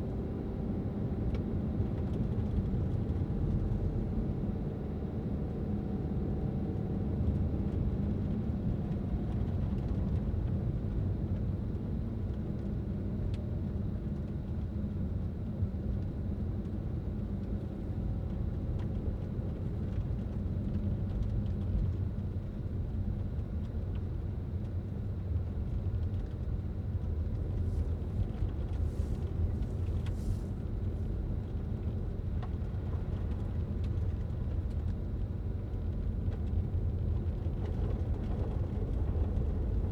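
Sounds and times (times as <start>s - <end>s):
car engine and tyres rumbling: 25.3s - 39.9s.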